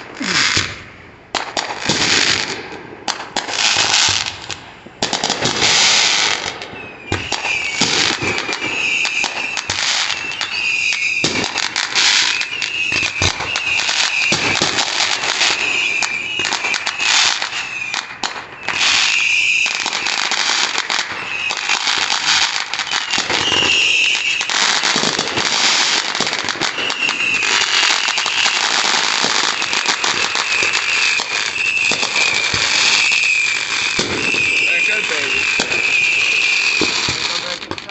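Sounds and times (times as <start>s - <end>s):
fireworks bangs and crackling: 0.0s - 37.9s
high wavering whistle: 5.8s - 37.6s.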